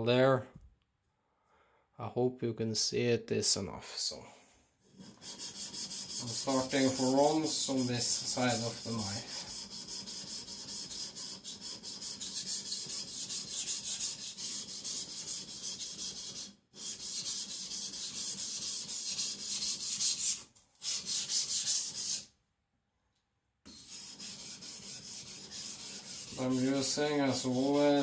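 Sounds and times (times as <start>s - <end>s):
knife scraping on whetstone: 23.7s - 28.0s.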